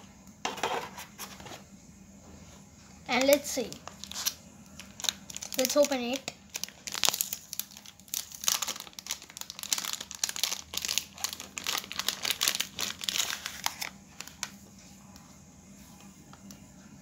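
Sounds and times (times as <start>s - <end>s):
packaging pouch crinkling: 3.2s - 14.5s.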